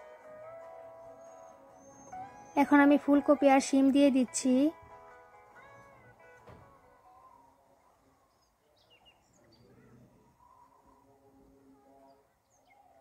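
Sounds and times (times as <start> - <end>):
faint high bird chirps: 1.0 - 3.2.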